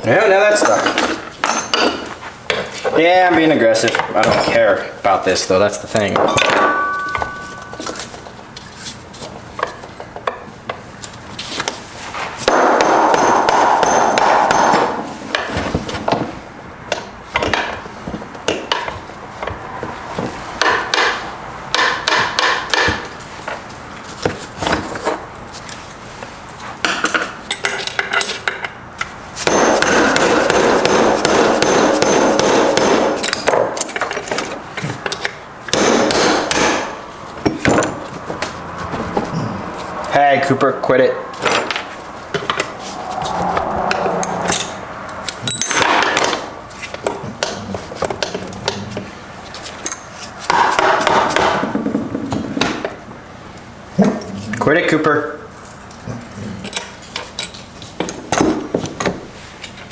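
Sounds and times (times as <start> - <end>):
hammer striking metal: 6.2 - 8.1, 12.4 - 15.6, 29.4 - 33.8, 35.7 - 37.0, 45.5 - 46.6.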